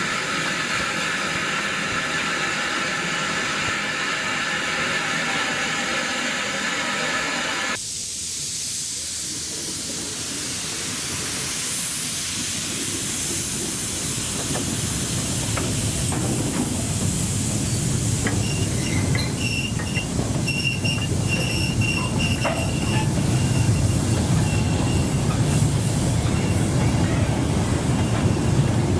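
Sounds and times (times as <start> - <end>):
steam hissing: 0.0 - 28.9
steam train rumble: 0.0 - 28.9
wheel flanges squealing: 17.6 - 28.9.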